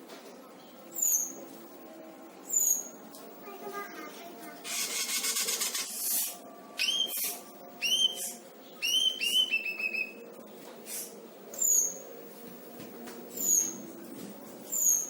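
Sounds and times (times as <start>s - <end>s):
songbird singing: 6.8s - 10.2s.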